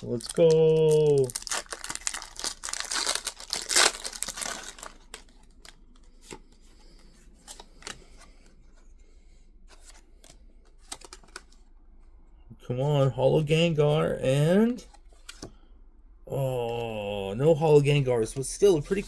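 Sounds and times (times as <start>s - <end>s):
wrapper tearing and crinkling: 0.0s - 5.8s
cards clicking and rustling: 0.0s - 8.4s, 9.7s - 11.6s, 14.8s - 15.6s.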